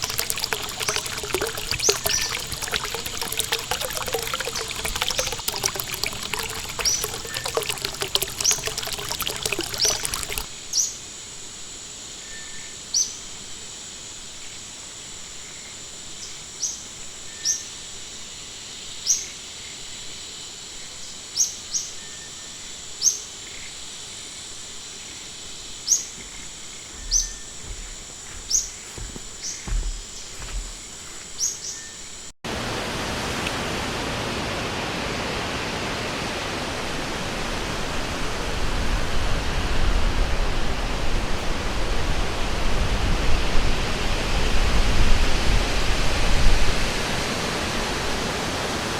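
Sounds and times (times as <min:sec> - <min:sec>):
running water babbling: 0:00.0 - 0:10.5
rushing water: 0:00.0 - 0:10.5, 0:32.5 - 0:48.9.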